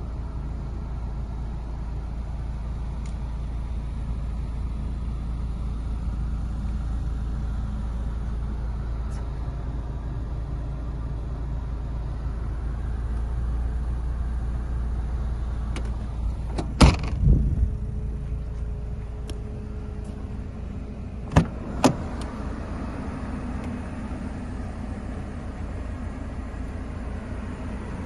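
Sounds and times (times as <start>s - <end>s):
car engine idling: 0.0s - 28.0s
thuds: 15.7s - 17.5s, 21.2s - 22.0s.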